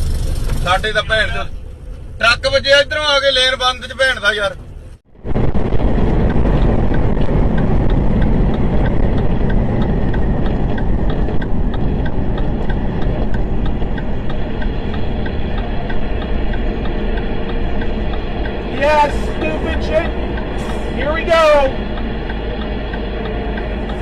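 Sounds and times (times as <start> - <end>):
heavy vehicle engine and road noise: 0.0 - 24.0
light ticking: 5.5 - 24.0.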